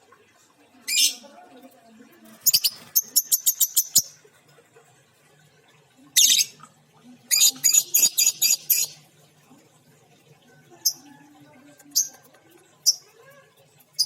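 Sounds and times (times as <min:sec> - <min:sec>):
lovebird chirping: 0:02.4 - 0:04.2, 0:07.3 - 0:09.0.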